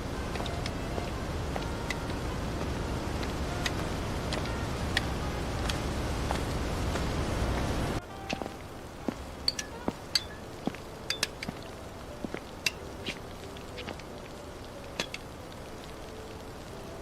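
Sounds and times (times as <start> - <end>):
raindrops tapping on a surface: 0.0 - 17.0
steady rain hiss: 0.0 - 17.0.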